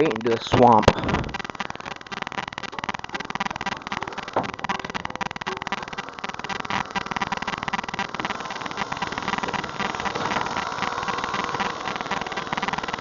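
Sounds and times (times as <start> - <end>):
lawnmower engine running: 0.0 - 13.0.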